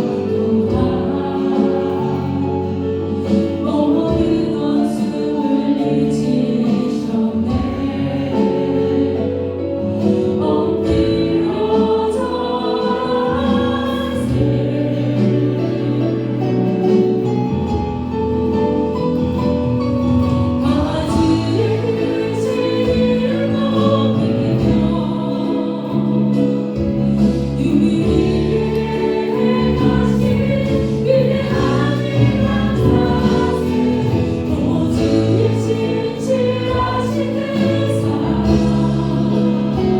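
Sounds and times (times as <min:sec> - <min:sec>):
congregation singing praise song: 0:00.0 - 0:18.2, 0:20.2 - 0:39.9
instrumental accompaniment: 0:00.0 - 0:39.9.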